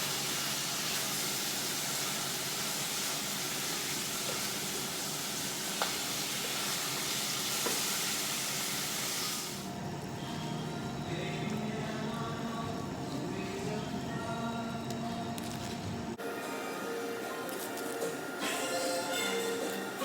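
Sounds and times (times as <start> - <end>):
food sizzling in a pan: 0.0 - 9.7.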